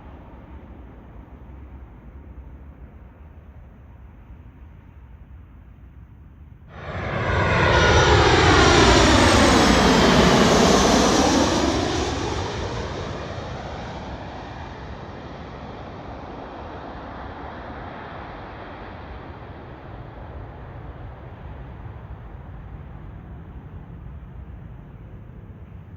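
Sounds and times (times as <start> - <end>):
jet airliner engine roar: 6.7 - 25.9.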